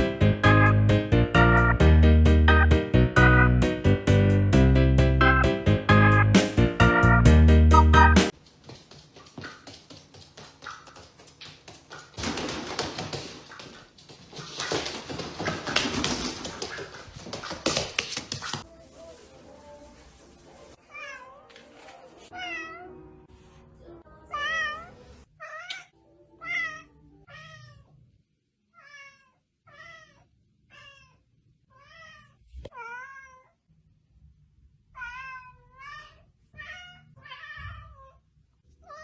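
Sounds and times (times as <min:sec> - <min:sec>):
cat meowing: 0:22.3 - 0:22.9, 0:24.3 - 0:27.9, 0:28.7 - 0:33.6, 0:34.9 - 0:38.2.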